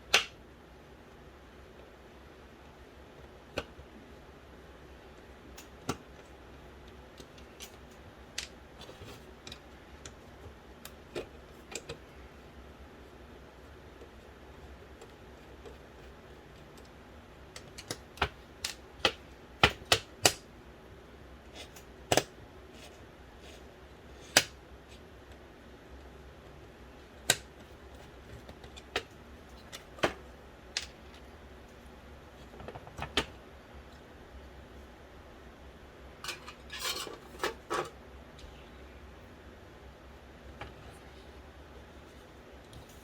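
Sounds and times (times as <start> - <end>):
clicks of parts and tools handled: 36.2 - 38.0.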